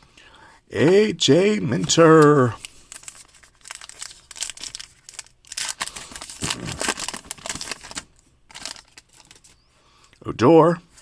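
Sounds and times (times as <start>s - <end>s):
cards and foil wrapper rustling: 1.6s - 10.2s.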